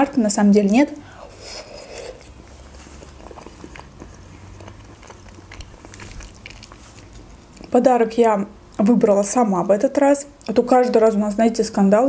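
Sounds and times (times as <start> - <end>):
wet chewing: 1.4 - 7.7.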